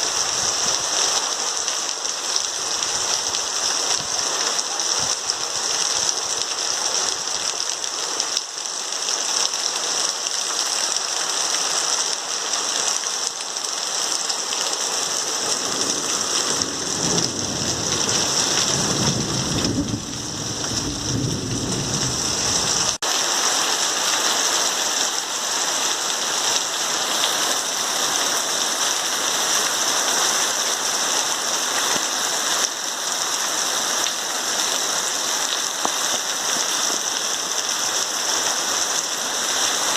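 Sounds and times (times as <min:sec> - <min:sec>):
heavy rain pouring: 0:00.0 - 0:39.9
thunder rumble: 0:15.5 - 0:23.0.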